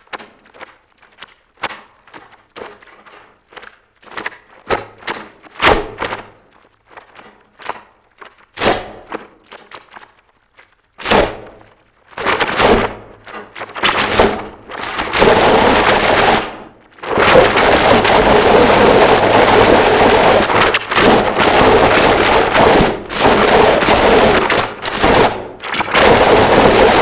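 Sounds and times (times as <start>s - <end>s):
harsh distorted noise music: 13.7s - 27.0s.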